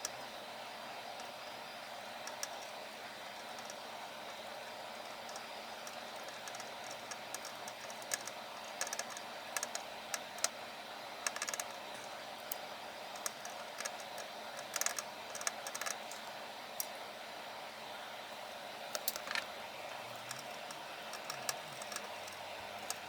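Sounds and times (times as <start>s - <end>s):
light clicks and taps: 2.3s - 2.8s, 5.0s - 10.6s, 11.3s - 12.6s, 13.2s - 16.9s, 20.2s - 23.0s.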